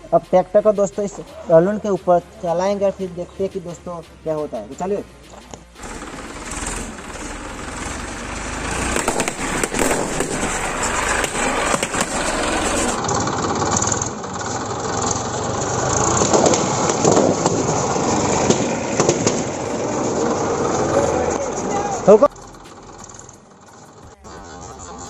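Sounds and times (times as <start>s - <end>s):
tractor engine running: 0.0s - 25.0s
balloons bursting: 8.6s - 13.0s.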